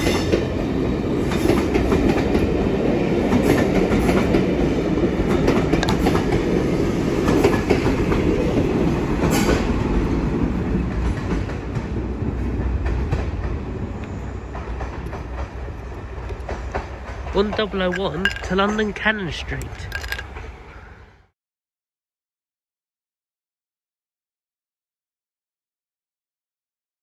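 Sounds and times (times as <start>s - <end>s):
train rumble: 0.0s - 21.1s
wheels clacking over rail joints: 3.2s - 9.7s, 12.6s - 20.6s.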